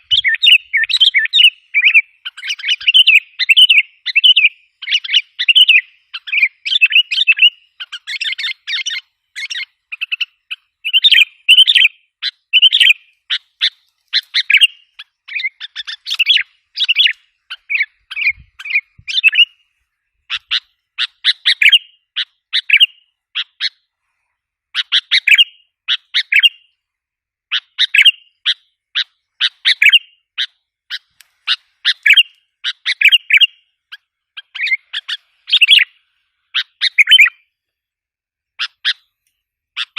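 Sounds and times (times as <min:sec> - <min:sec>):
bulbul chirping: 0:00.0 - 0:19.6, 0:31.8 - 0:36.0, 0:36.6 - 0:37.5.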